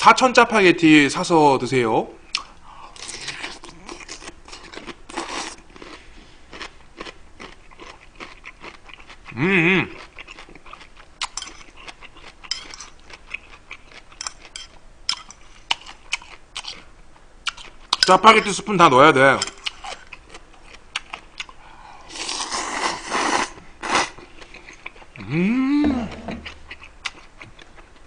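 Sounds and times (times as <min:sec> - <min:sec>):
chewing and mouth clicks: 0:02.3 - 0:16.8, 0:19.6 - 0:21.6, 0:24.2 - 0:25.2, 0:26.4 - 0:28.0
person humming: 0:09.4 - 0:09.9, 0:25.2 - 0:26.4.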